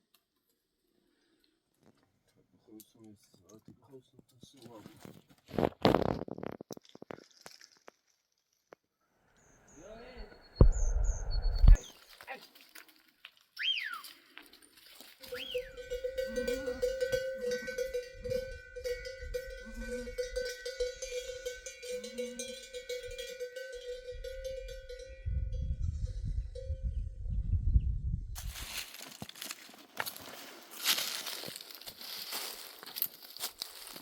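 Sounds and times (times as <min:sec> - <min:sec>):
rising-and-falling whistles: 0:09.7 - 0:11.9, 0:13.6 - 0:14.1, 0:15.2 - 0:15.8
livestock bell jangling: 0:14.0 - 0:27.0.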